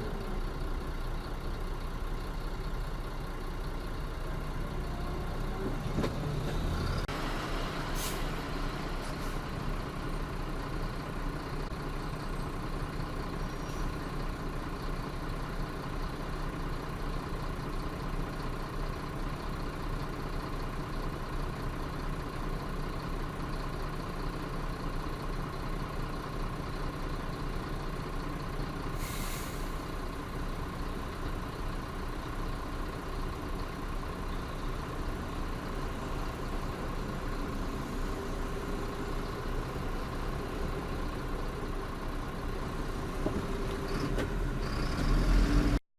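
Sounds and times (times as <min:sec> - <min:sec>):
road noise: 0:00.0 - 0:45.8
truck engine running: 0:00.0 - 0:45.8
short hiss: 0:29.0 - 0:29.8.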